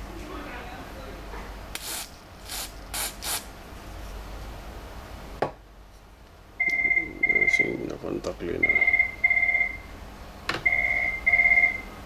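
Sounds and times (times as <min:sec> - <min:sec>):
aerosol spray hisses: 0:01.8 - 0:03.5.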